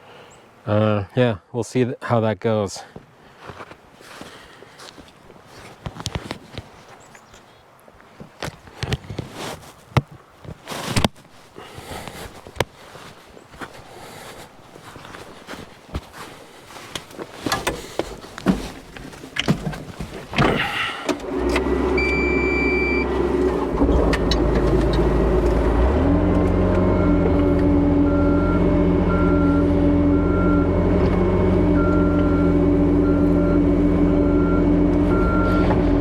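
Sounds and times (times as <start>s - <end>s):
knocks and handling noises: 5.0s - 7.0s, 15.0s - 21.7s
vehicle engine starting and running: 20.4s - 36.0s
short beeps: 22.0s - 23.1s, 26.9s - 30.8s, 31.8s - 35.8s.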